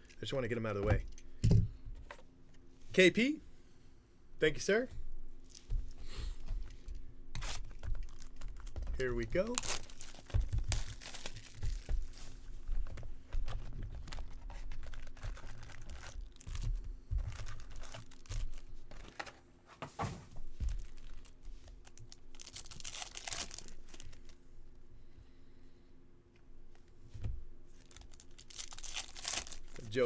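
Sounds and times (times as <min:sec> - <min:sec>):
foil wrappers tearing and crinkling: 0:07.4 - 0:12.4, 0:13.4 - 0:19.2, 0:20.6 - 0:24.4, 0:27.7 - 0:30.0.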